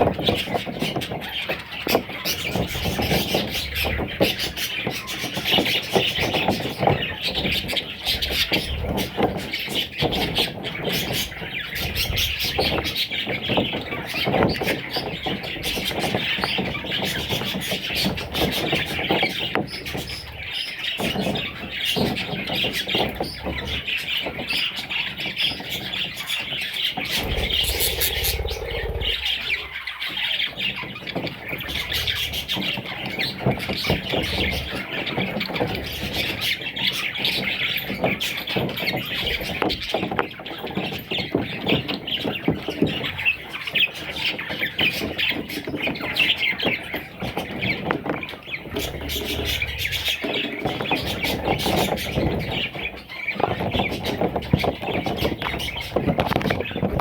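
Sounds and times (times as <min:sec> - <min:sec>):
budgerigar chicks calling: 0:27.1 - 0:30.1.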